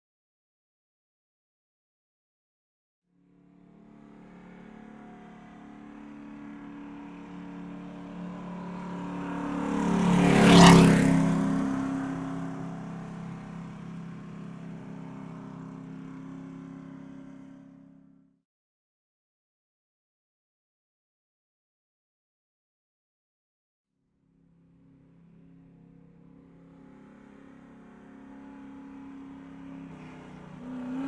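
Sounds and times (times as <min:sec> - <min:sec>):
car passing by: 0:03.4 - 0:18.0, 0:24.6 - 0:31.0.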